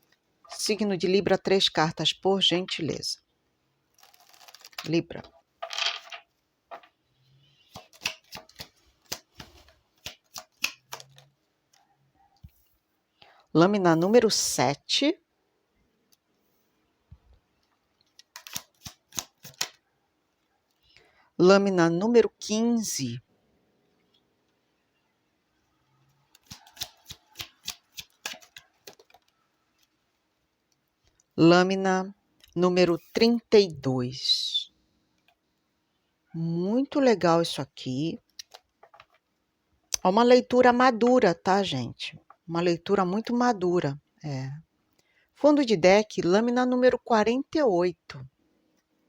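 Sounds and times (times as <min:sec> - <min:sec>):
cards being shuffled: 0:04.0 - 0:06.9, 0:07.7 - 0:11.3, 0:18.1 - 0:19.8, 0:26.4 - 0:29.9.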